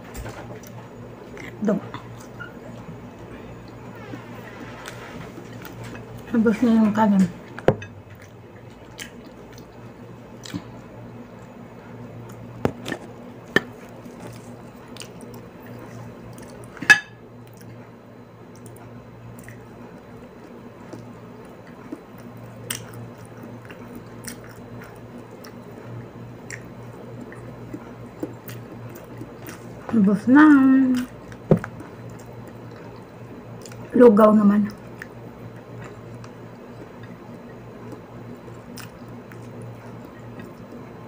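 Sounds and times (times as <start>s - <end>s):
steady low hum: 0.0s - 41.0s
person chewing and smacking: 7.4s - 11.6s, 12.2s - 16.8s, 17.4s - 17.9s, 18.5s - 29.9s, 30.5s - 33.9s, 34.7s - 41.0s.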